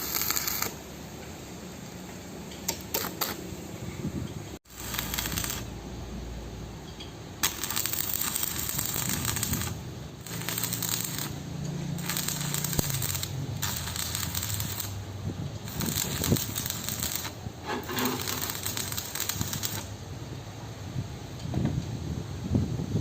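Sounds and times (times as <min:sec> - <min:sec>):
hiss: 0:04.7 - 0:05.7, 0:07.4 - 0:19.9.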